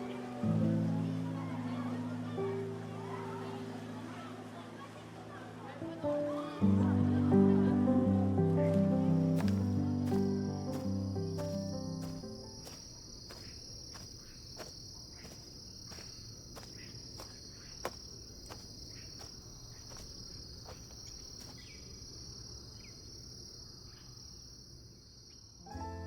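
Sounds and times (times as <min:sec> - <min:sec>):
background music: 0:00.0 - 0:12.7, 0:25.7 - 0:26.0
insects chirring: 0:09.1 - 0:26.0.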